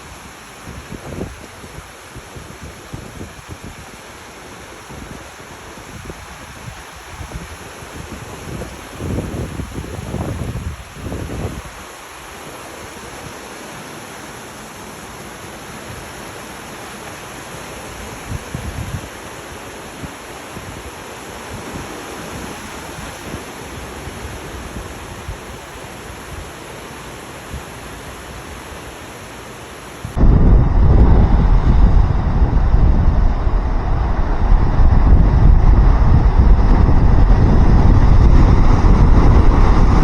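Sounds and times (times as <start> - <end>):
flowing water rushing: 0.0 - 40.0
loud low rumble: 30.2 - 40.0.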